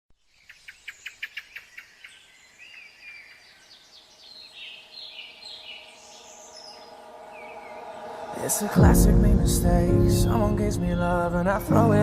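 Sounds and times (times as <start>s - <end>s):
bird repeated chirps: 0.2s - 8.1s.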